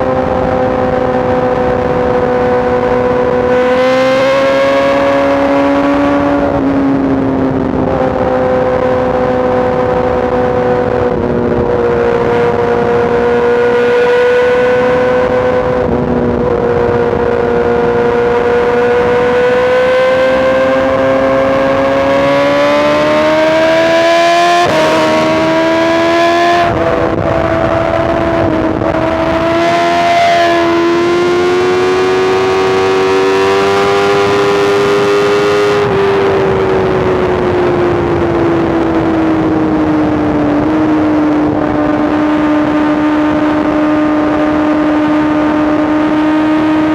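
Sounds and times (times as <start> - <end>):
motorcycle engine at speed: 0.0 - 46.9
wind rushing: 0.0 - 46.9.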